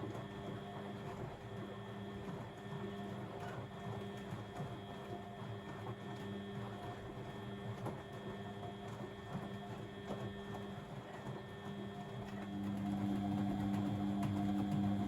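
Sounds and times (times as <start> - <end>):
washing machine motor hum: 12.3 - 15.0.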